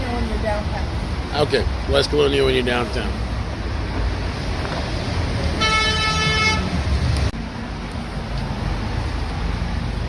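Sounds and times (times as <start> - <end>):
street traffic rumbling: 0.0 - 10.0
car horn: 5.6 - 6.8.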